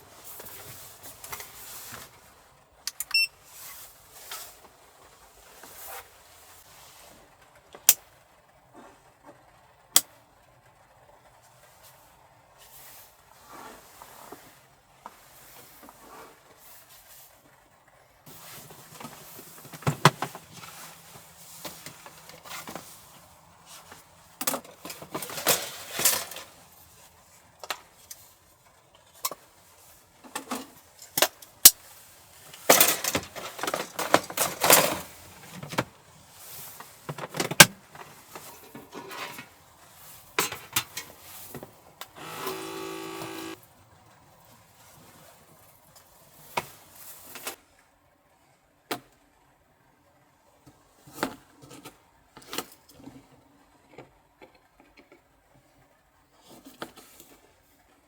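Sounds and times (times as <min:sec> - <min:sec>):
objects rustling and clattering: 0:00.0 - 0:02.6, 0:03.5 - 0:07.6, 0:18.3 - 0:42.2, 0:43.3 - 0:47.6
short buzzing hum: 0:42.2 - 0:43.6.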